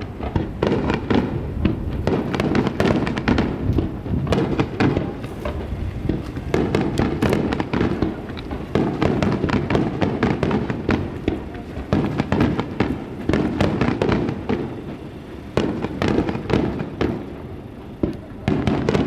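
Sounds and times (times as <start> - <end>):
fireworks launching and bursting: 0.0 - 19.0.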